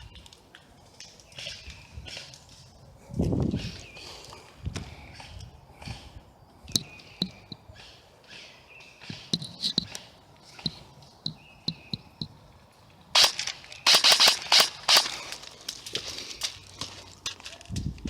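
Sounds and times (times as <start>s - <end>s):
airsoft gun cracks: 13.2s - 15.8s.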